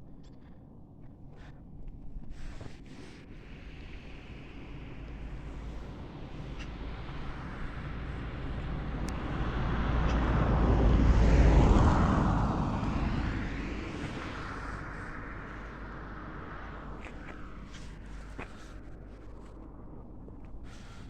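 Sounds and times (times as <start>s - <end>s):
vehicle passing by: 4.5s - 19.5s.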